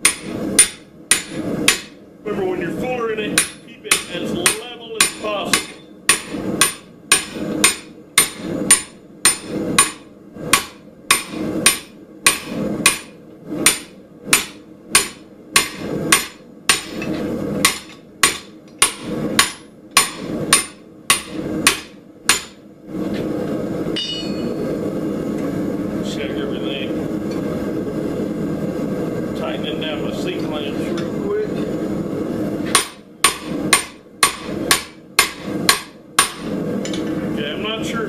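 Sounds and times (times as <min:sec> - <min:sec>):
hammer striking metal: 0:00.0 - 0:02.0, 0:03.4 - 0:22.6, 0:24.0 - 0:24.6, 0:32.7 - 0:36.5
steady noise: 0:00.0 - 0:38.0.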